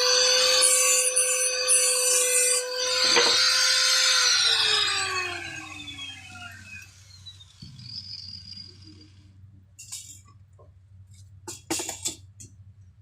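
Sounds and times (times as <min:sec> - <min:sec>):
power tool motor on wood: 0:00.0 - 0:09.2
motor winding down whine: 0:00.0 - 0:09.4.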